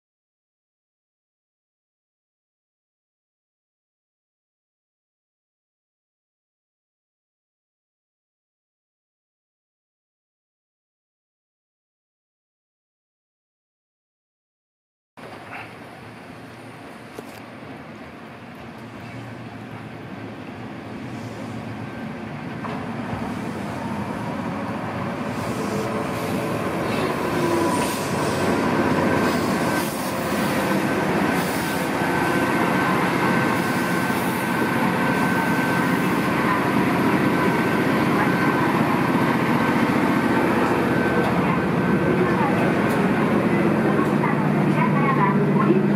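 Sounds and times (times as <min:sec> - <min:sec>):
electric railcar running noise: 0:15.2 - 0:45.9.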